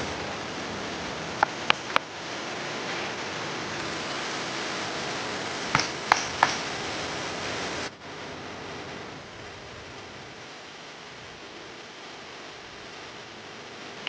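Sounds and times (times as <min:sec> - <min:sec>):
flowing water rushing: 0:00.0 - 0:07.9
sharp knocks: 0:05.7 - 0:06.7.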